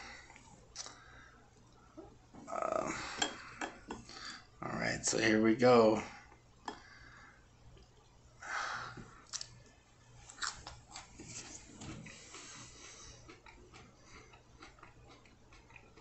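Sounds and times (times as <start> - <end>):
crisp wet crunches of chewing pepper: 10.3 - 11.2, 12.1 - 16.0.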